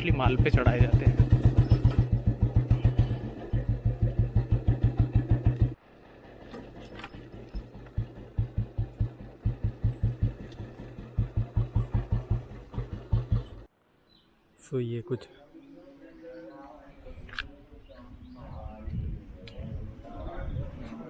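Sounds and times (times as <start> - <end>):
motorcycle engine thumping idle: 0.0 - 13.7.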